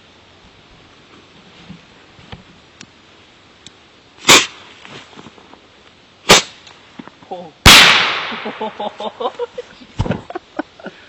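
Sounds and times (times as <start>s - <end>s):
loud sharp bangs: 4.3s - 4.6s, 6.3s - 6.6s, 7.6s - 8.8s.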